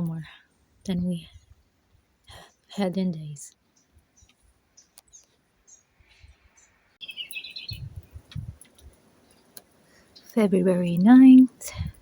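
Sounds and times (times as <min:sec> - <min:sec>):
small birds chirping: 0:00.0 - 0:12.0
bird trill: 0:06.6 - 0:08.2
low thuds: 0:07.7 - 0:08.6.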